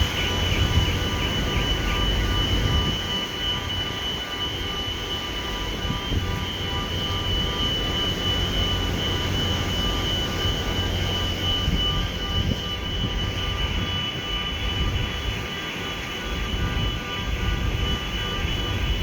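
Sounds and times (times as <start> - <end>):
machinery whine: 0.0 - 19.0
ship engine low rumble: 0.0 - 19.0.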